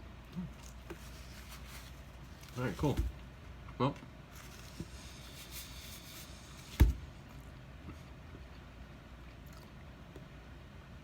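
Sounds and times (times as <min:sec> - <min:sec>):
sharp thump: 0:06.7 - 0:07.0.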